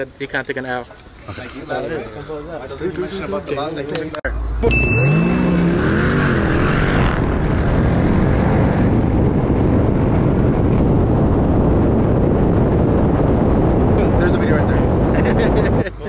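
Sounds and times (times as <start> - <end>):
car engine at full throttle: 4.4 - 15.2
heavy wind noise: 4.9 - 16.0.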